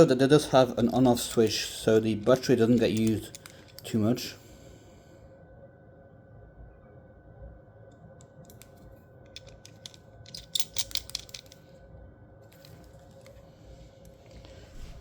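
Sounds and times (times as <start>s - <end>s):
small metal clicks and clacks: 2.8s - 4.0s, 8.5s - 11.6s.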